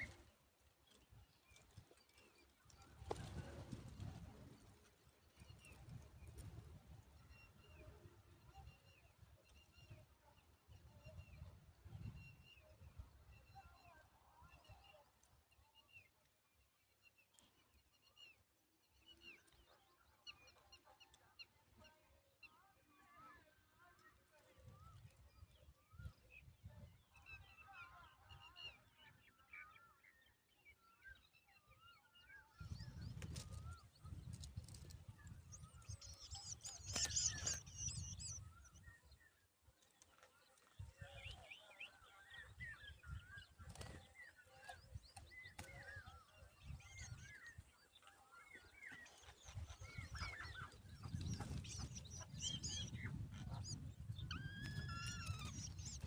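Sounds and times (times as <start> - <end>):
birds chirping: 32.5 - 56.0.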